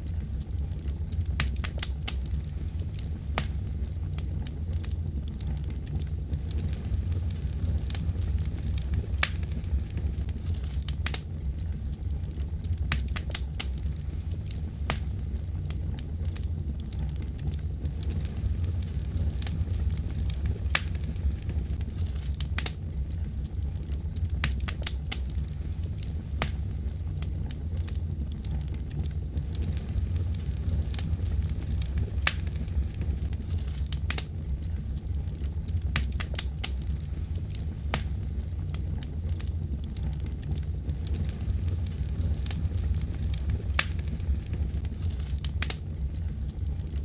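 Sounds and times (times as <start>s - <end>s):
wood fire crackling and popping: 0.0s - 47.0s.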